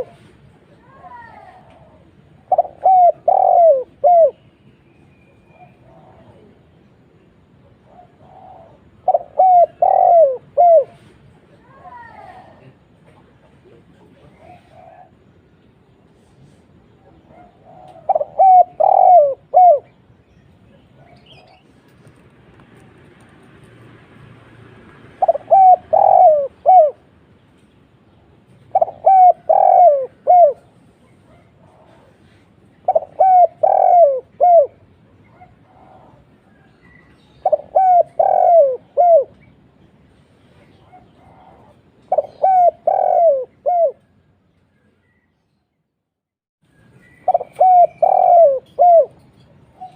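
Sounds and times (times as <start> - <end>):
dove cooing: 0.0 - 0.2, 1.1 - 4.4, 7.8 - 11.1, 14.1 - 15.3, 17.1 - 20.0, 25.2 - 27.1, 28.6 - 39.5, 40.7 - 44.2, 47.1 - 49.9.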